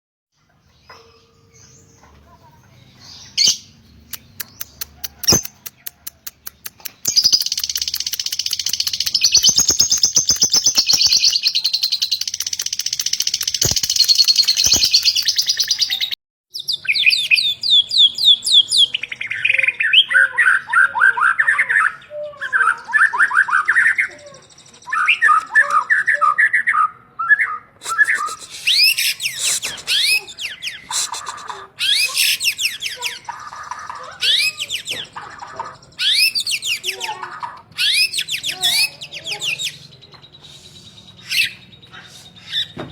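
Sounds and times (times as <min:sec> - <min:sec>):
high chattering bird trill: 0:00.8 - 0:26.4, 0:27.8 - 0:42.8
quiet clicks: 0:04.1 - 0:11.4, 0:12.1 - 0:15.4
whistled bird song phrases: 0:07.0 - 0:37.2, 0:37.8 - 0:42.8.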